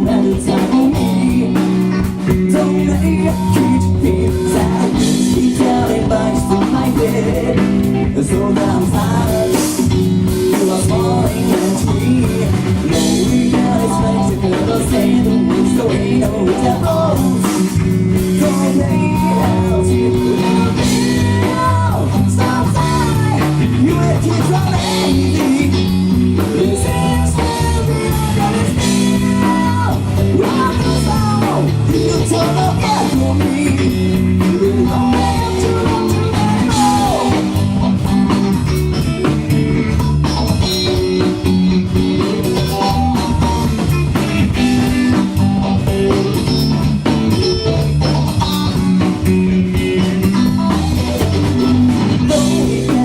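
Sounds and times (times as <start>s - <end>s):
person singing: 0.0s - 37.7s, 51.2s - 53.0s
bass guitar: 0.0s - 53.0s
drum kit: 0.0s - 53.0s
electric guitar: 0.0s - 53.0s.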